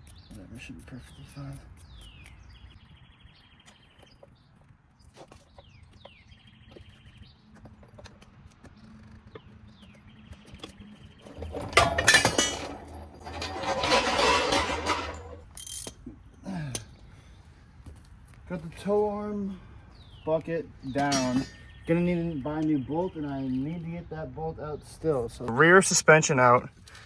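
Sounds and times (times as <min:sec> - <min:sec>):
metal clanking and scraping: 0:11.2 - 0:15.8, 0:20.9 - 0:21.8.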